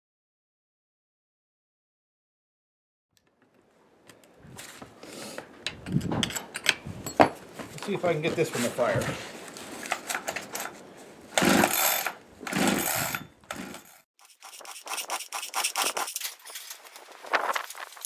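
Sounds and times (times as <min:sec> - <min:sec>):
clicking and handling of saw: 0:09.8 - 0:10.8, 0:11.4 - 0:17.8
chainsaw starter cord pulls: 0:09.8 - 0:17.2.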